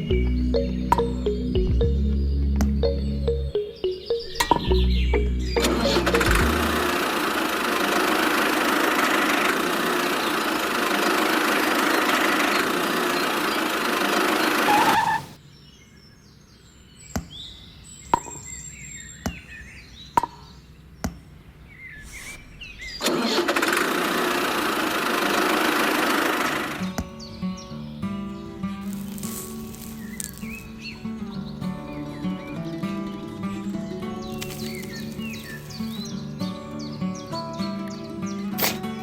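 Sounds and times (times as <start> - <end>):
small motor running: 5.6 - 15.4, 23.1 - 26.9
faint chirps: 33.5 - 39.0
sharp clicks or taps: 38.6 - 38.8.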